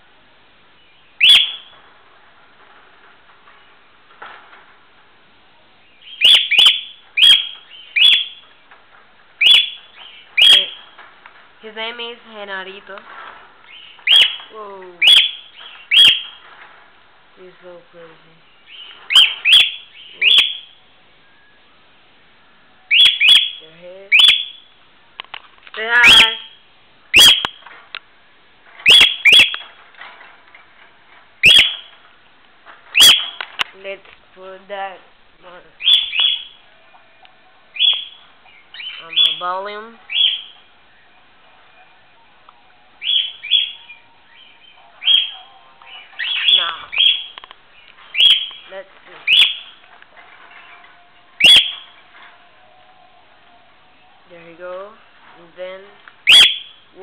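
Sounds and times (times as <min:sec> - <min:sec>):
cockatiel calling: 0:01.0 - 0:01.8, 0:06.0 - 0:08.5, 0:09.4 - 0:11.0, 0:13.7 - 0:16.4, 0:18.6 - 0:20.8, 0:22.9 - 0:24.7, 0:26.0 - 0:27.6, 0:28.8 - 0:29.7, 0:31.4 - 0:32.0, 0:32.9 - 0:33.5, 0:35.8 - 0:36.6, 0:37.7 - 0:40.7, 0:43.0 - 0:49.8, 0:51.4 - 0:52.0, 0:56.2 - 0:56.8.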